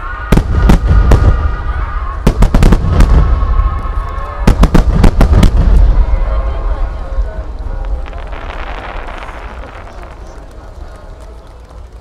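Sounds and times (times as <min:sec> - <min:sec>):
deep rumble of echoing detonations: 0:00.0 - 0:11.9
firework shells booming: 0:02.2 - 0:06.3, 0:07.8 - 0:11.1.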